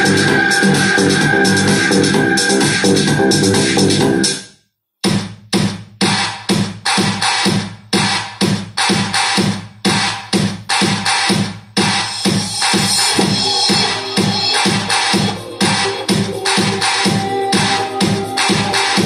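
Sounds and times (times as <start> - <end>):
heavy bass hits: 0.0 - 4.2
electronic dance music: 0.0 - 19.0.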